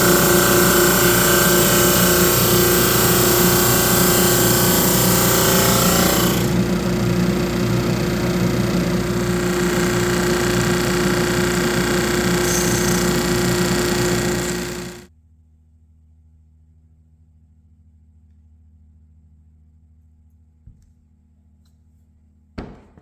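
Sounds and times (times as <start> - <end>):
tool hissing through wood: 0.0 - 15.0
power tool motor humming: 0.0 - 15.1.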